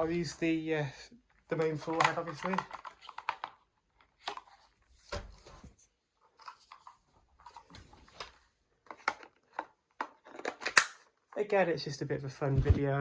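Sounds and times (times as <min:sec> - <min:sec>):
plastic parts clicking and knocking: 0:01.5 - 0:05.6, 0:06.2 - 0:11.4
thump: 0:12.5 - 0:12.9.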